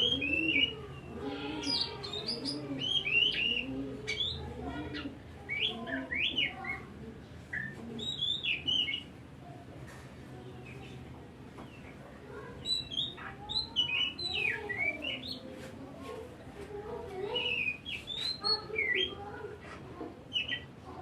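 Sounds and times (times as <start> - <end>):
bird whistling and chirping: 1.6 - 4.4, 7.6 - 9.0.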